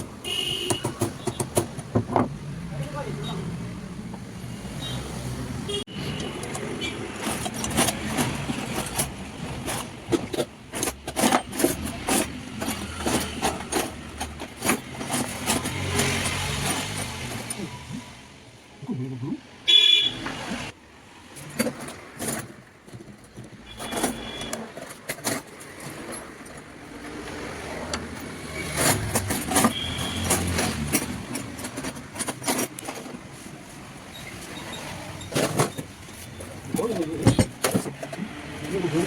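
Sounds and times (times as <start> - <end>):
irregular clatter: 0.0 - 2.3, 6.2 - 17.6, 21.4 - 33.6, 34.3 - 39.0
street traffic: 0.0 - 39.0
background voices: 17.4 - 19.5, 36.4 - 39.0.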